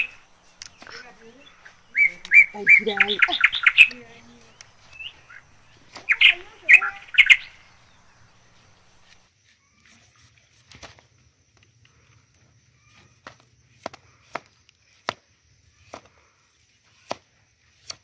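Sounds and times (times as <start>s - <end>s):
bird chirping: 0.0s - 9.3s.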